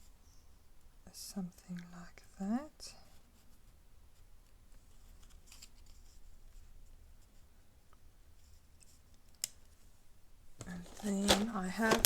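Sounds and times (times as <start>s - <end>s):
paper rustling and scratching: 10.6s - 12.0s.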